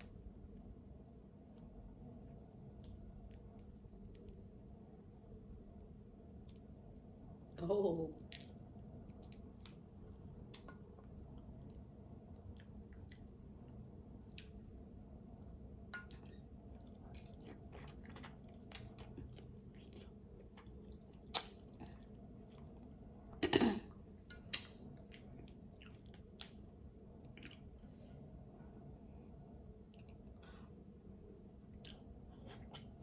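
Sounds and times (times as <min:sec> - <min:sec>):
person chewing: 0:16.1 - 0:22.9, 0:24.4 - 0:27.9.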